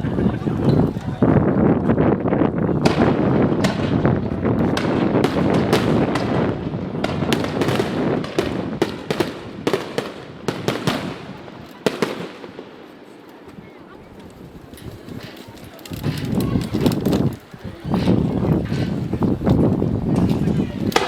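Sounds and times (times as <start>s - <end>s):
fireworks crackling: 0.1s - 21.0s
fireworks booming: 2.1s - 13.2s, 18.0s - 21.0s.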